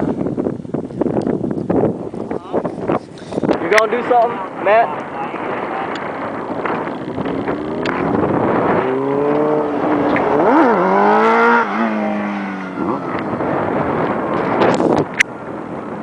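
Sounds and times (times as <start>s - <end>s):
sport bike engine accelerating: 5.9s - 14.8s.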